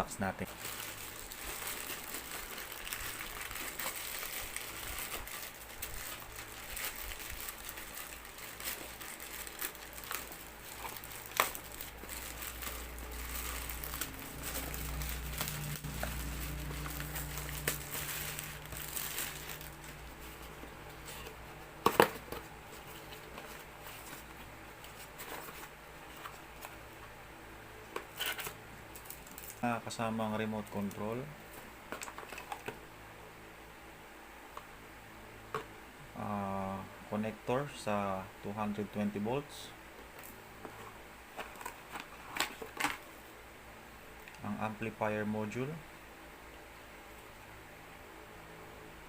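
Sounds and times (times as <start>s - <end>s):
packaging crinkling: 0.5s - 24.3s, 28.1s - 29.7s, 41.4s - 43.1s.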